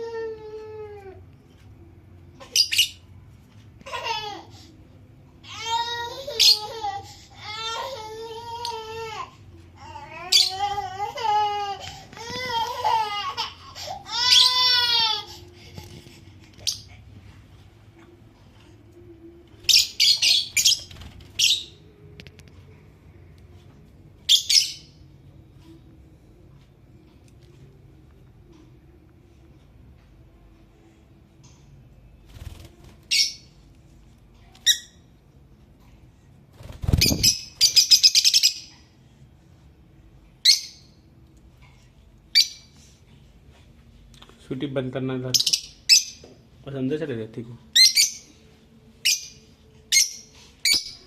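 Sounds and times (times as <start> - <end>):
lovebirds chirping: 19.6 - 21.9.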